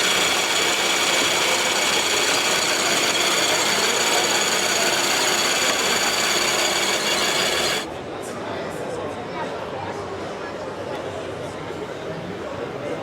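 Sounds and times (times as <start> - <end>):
high-pitched motor whines: 0.0 - 7.9
model truck motor whirring: 0.0 - 7.9.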